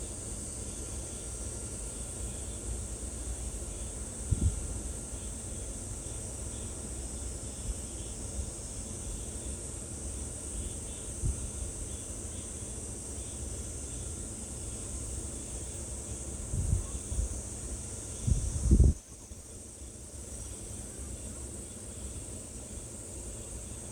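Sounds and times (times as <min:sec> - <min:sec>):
wind on microphone: 0:04.3 - 0:04.6, 0:16.5 - 0:17.4, 0:18.2 - 0:19.3
insects singing: 0:04.9 - 0:23.9.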